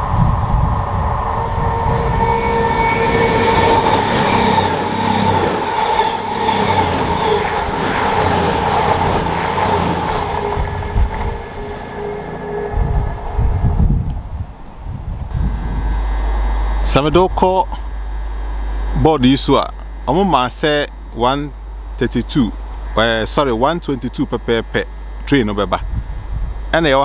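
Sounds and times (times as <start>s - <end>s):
train wheel and rail noise: 0.0s - 19.0s
steady whine: 0.0s - 27.0s.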